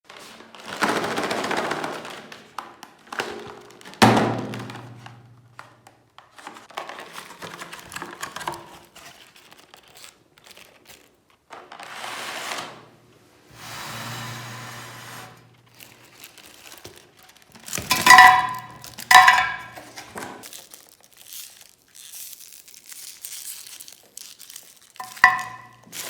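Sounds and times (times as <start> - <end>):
electric meat grinder crunching foil: 14.0 - 26.0.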